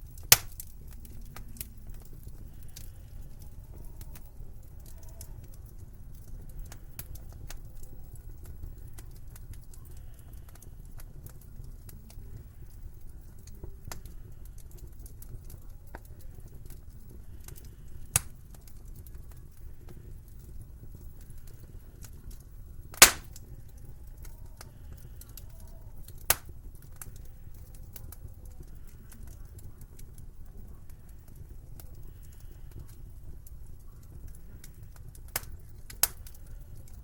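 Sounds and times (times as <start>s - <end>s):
wood fire crackling: 0.0s - 37.0s
sharp loud pop of fire: 0.3s - 0.6s, 23.0s - 23.4s.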